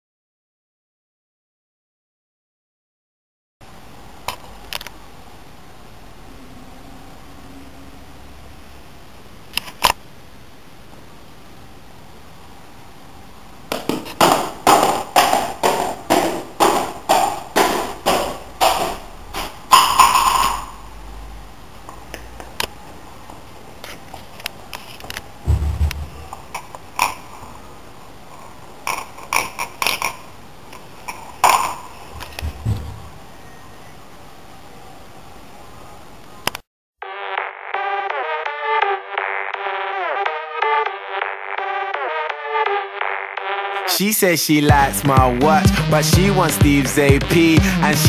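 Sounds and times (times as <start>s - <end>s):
low thud: 25.4s - 26.4s, 32.2s - 33.2s.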